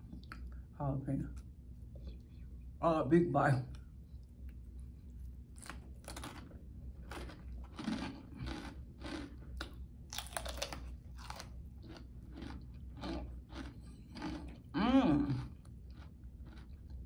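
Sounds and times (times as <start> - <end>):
crunching and chewing: 3.7 - 17.0.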